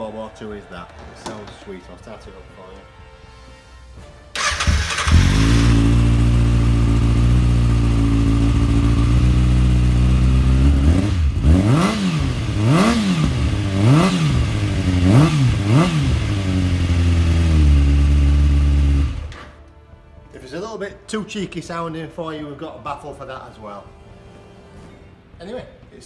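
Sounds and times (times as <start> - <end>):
motorcycle engine cranking: 4.4 - 8.9
motorcycle engine idling: 4.4 - 19.3
motorcycle engine revving: 4.4 - 19.6.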